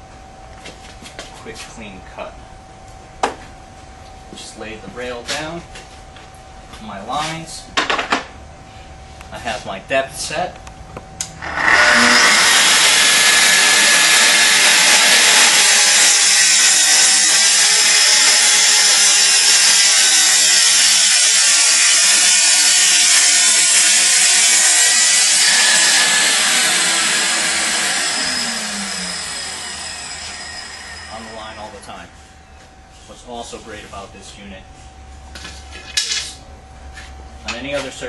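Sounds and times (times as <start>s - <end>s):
saw motor winding down: 11.3s - 32.1s
circular saw cutting: 11.4s - 32.2s.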